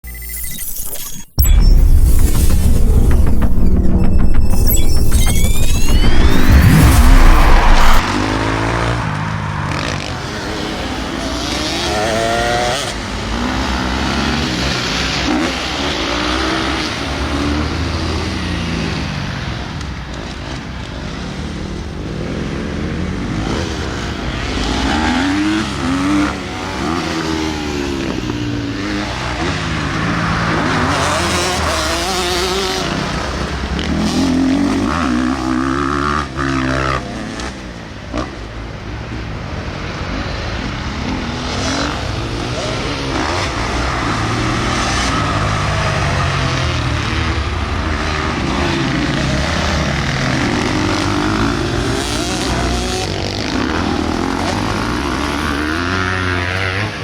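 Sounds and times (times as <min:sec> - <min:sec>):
motocross bike engine revving: 0:40.9 - 0:57.0.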